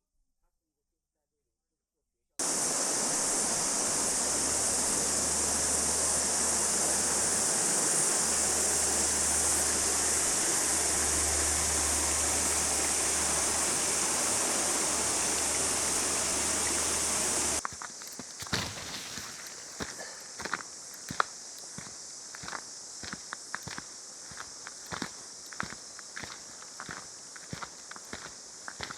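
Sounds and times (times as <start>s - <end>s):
rushing water: 2.4s - 17.6s, 18.4s - 20.4s.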